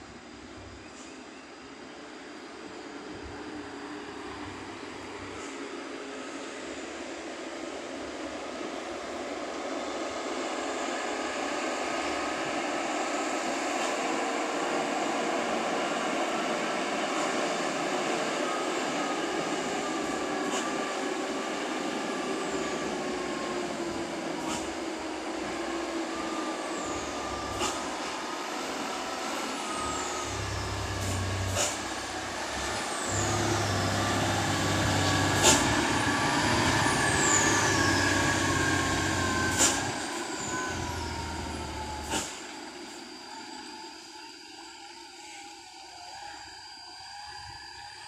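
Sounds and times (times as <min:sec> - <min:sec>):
truck diesel engine rumbling: 0:19.3 - 0:42.5
air brake bursts: 0:19.4 - 0:43.1.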